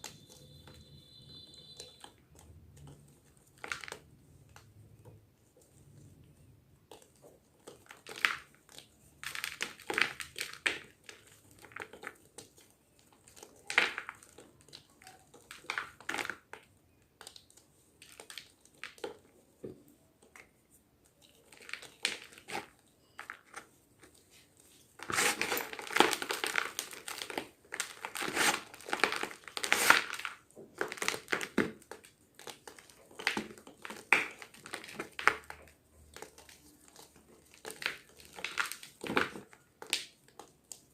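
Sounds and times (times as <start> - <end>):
chalk block crunching: 21.1 - 40.9.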